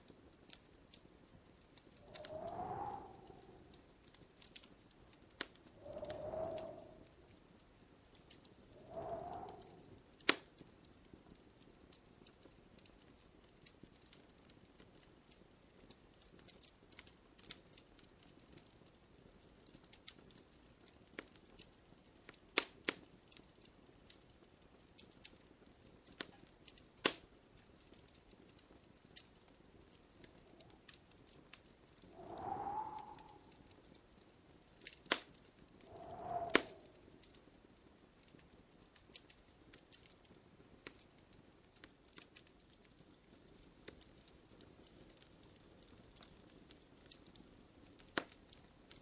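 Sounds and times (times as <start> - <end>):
wood fire crackling: 0.0 - 49.0
fire hiss: 1.8 - 4.6, 5.4 - 7.3, 8.3 - 10.5, 32.0 - 33.9, 34.8 - 37.4.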